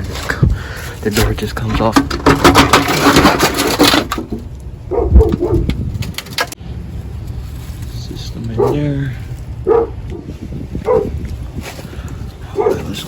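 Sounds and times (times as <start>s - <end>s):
door rattling and scraping: 1.1s - 6.6s.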